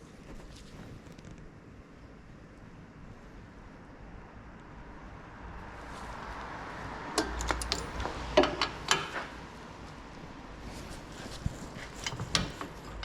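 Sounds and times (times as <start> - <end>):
metal hand tools clinking: 7.2 - 9.3.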